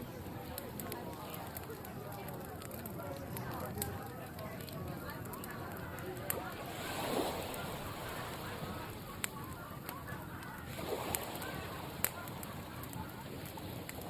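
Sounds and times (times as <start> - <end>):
campfire crackling and popping: 0.0 - 14.0
sea surf rushing: 6.2 - 14.0.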